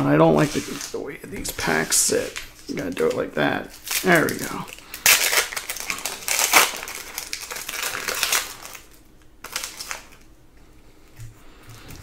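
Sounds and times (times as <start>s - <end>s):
wrapper crinkling: 0.3s - 10.3s.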